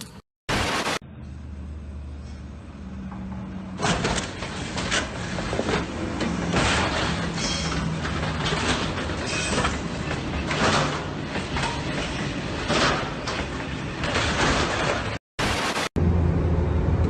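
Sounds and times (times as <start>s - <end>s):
low engine drone: 15.4s - 17.0s.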